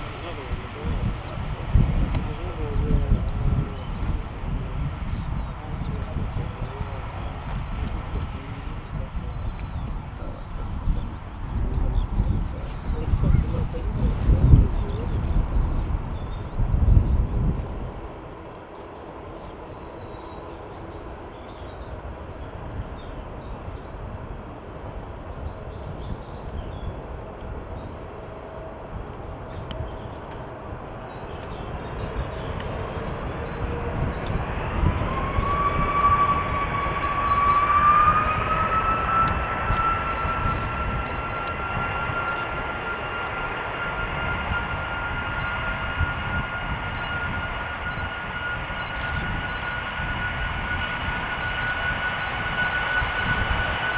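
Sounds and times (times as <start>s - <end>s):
low rumble: 0.0s - 17.9s, 31.7s - 53.9s
jet engine whine spooling up: 0.0s - 53.9s.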